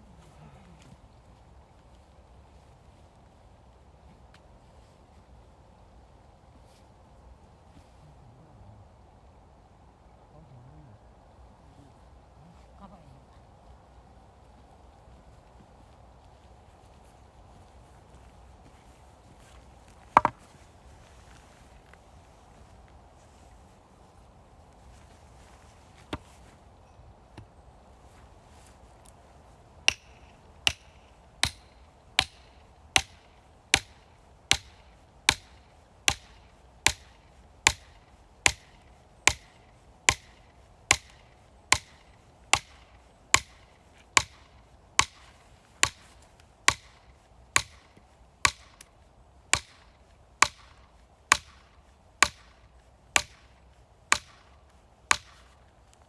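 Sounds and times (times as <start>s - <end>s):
axe chopping wood: 20.2s - 20.5s, 29.9s - 32.4s, 33.0s - 43.6s, 44.2s - 46.0s, 46.7s - 47.0s, 47.6s - 47.9s, 48.5s - 48.9s, 49.6s - 49.8s, 50.4s - 51.6s, 52.2s - 52.5s, 53.2s - 53.5s, 54.1s - 54.5s, 55.1s - 55.5s.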